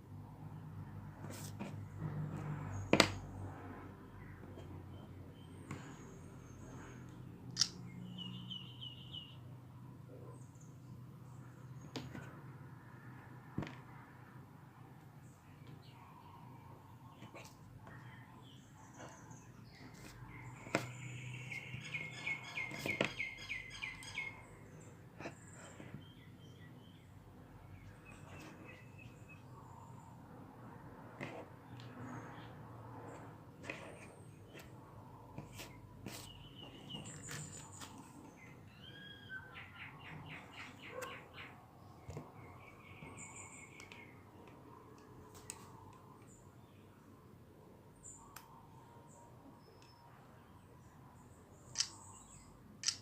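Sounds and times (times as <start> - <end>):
faint bird chirping: 4.0 - 12.3, 15.2 - 30.3, 31.7 - 52.7
sharp clicks: 51.7 - 52.0.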